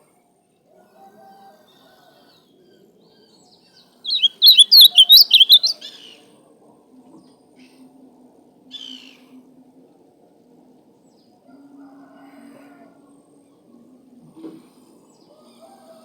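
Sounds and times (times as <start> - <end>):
grosbeak warbling song: 4.1 - 6.0.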